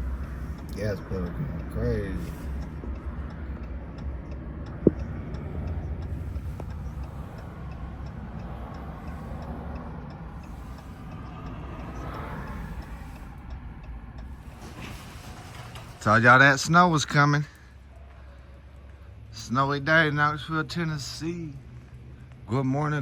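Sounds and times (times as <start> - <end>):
faint regular ticking: 0.0 - 23.0
road noise: 0.0 - 23.0
truck engine rumbling: 0.0 - 23.0.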